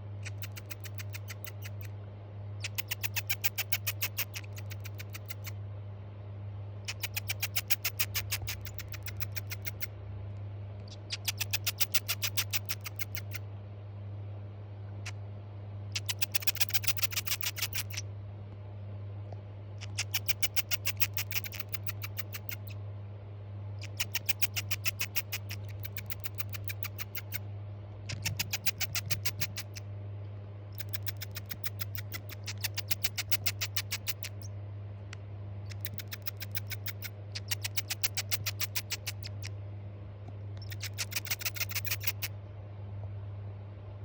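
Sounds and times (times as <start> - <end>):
steady low hum: 0.0 - 44.0
dormouse chirping clicks: 0.2 - 2.0, 2.6 - 5.6, 6.8 - 10.0, 10.8 - 13.4, 15.9 - 18.1, 19.8 - 22.8, 23.8 - 27.4, 28.0 - 29.9, 30.7 - 34.5, 35.1 - 39.6, 40.6 - 42.4.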